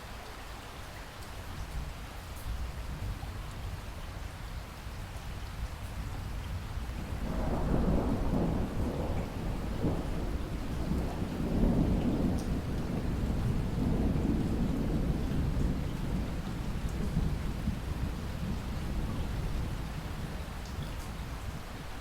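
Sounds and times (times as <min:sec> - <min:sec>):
steady rain: 0:00.0 - 0:22.0
thunder rumble: 0:07.0 - 0:21.3.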